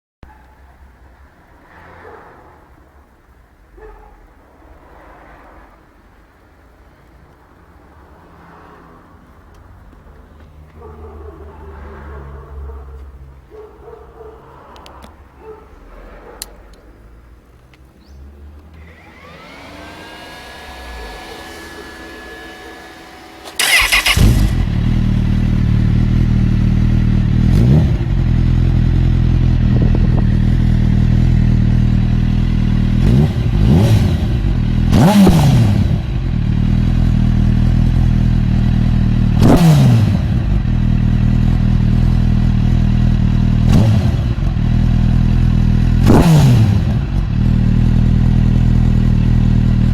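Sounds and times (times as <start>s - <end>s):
motorcycle engine idling and revving: 17.4s - 49.9s
starter motor whirring: 18.7s - 25.0s.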